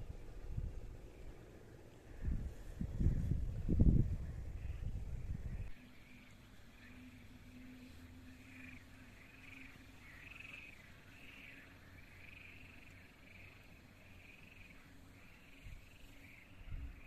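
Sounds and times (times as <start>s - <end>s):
outdoor background hiss: 0.0s - 17.0s
faint animal calls: 6.8s - 17.0s.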